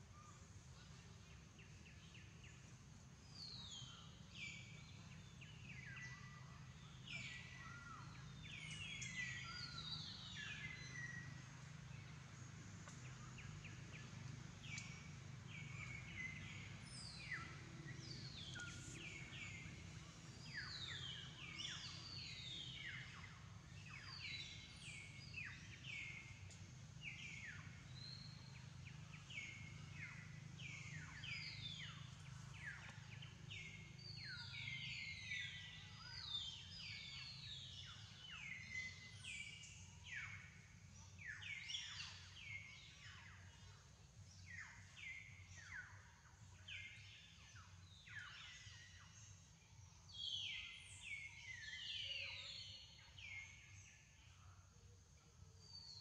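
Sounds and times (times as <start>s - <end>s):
faint low hum: 0.0s - 56.0s
birds chirping: 3.4s - 43.6s.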